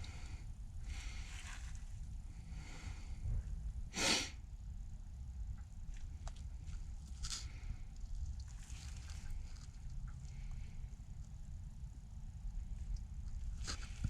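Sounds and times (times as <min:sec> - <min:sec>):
low steady rumble: 0:00.0 - 0:14.0
person breathing: 0:02.4 - 0:03.4.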